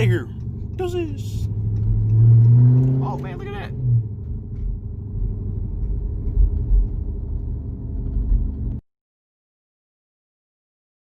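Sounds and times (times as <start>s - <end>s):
car engine rumbling: 0.0s - 8.8s.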